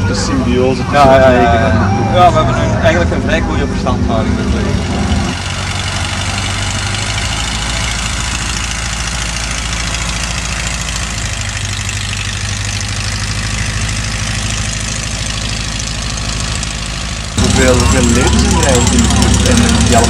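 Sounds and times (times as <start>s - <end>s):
aircraft piston engine idling: 3.1s - 20.0s.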